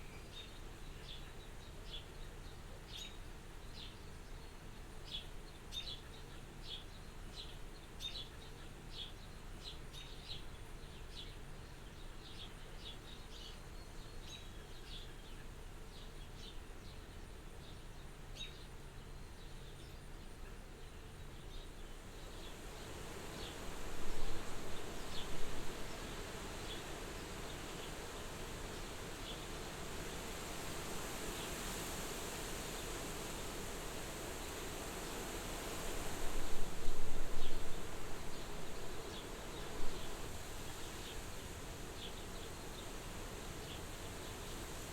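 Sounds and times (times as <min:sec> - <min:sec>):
wind blowing at a window: 0:21.4 - 0:44.9.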